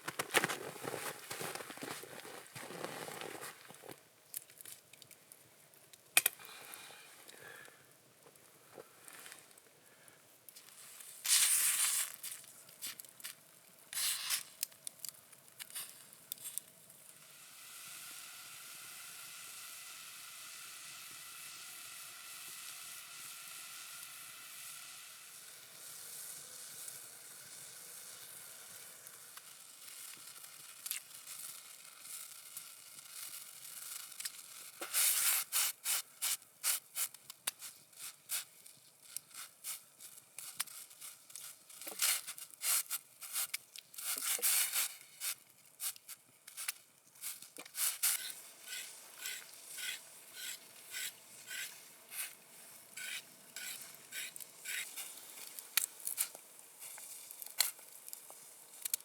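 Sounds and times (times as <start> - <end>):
scraping crunching strokes: 0.0 - 4.0
steady sizzling hiss: 0.0 - 59.0.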